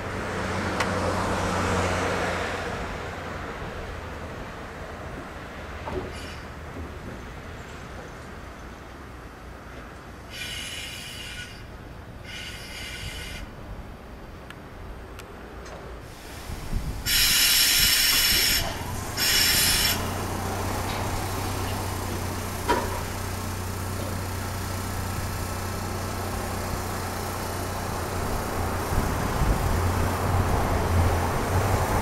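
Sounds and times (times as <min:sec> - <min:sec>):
hissing air bursts: 0:10.3 - 0:11.7, 0:12.3 - 0:13.5, 0:16.0 - 0:30.6.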